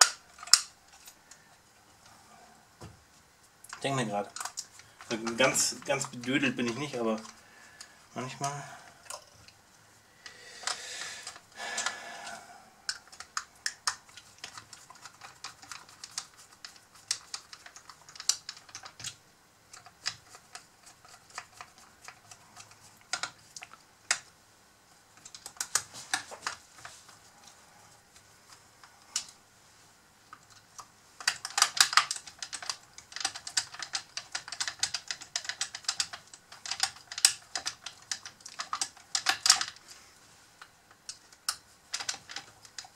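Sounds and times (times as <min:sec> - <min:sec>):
metal parts clicking and tapping: 0:00.0 - 0:01.2, 0:12.9 - 0:24.3, 0:30.3 - 0:39.8, 0:40.9 - 0:42.9.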